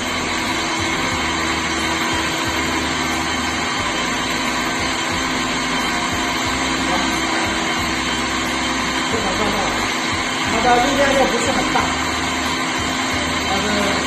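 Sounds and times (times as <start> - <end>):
electric motor humming: 0.0 - 14.0.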